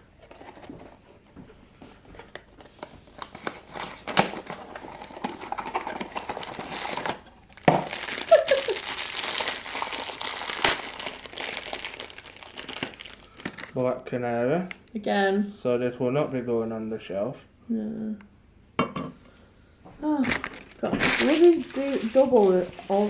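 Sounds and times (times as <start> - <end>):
packaging crinkling and tearing: 2.2 - 13.8, 20.2 - 23.0.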